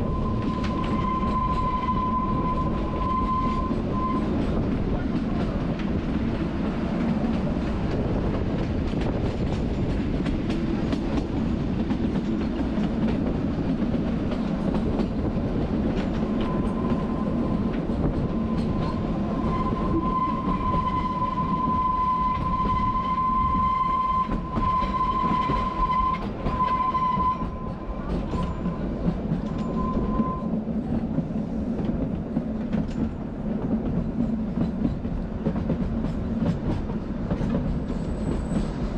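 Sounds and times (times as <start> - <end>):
high wheel squeal: 0.0 - 4.6, 18.2 - 28.8, 29.5 - 30.6
train wheels rumbling on track: 0.0 - 38.9.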